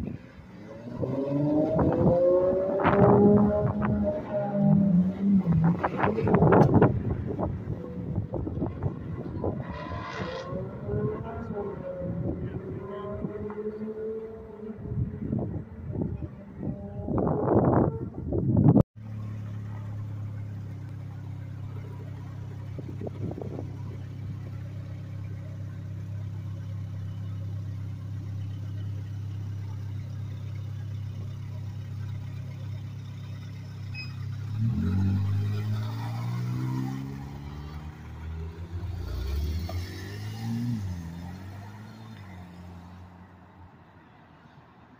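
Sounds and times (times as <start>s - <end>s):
car engine revving: 0.0s - 18.4s, 19.0s - 43.3s
car engine idling: 19.0s - 36.0s.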